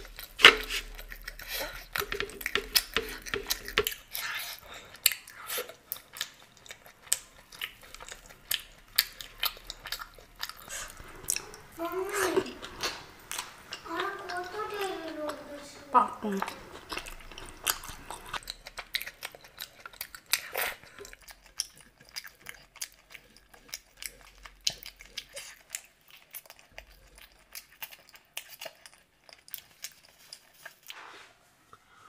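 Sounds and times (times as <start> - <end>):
person chewing: 0.0 - 31.1
lip smacks: 12.4 - 14.4, 16.4 - 31.0
wet mouth clicks: 16.4 - 25.9.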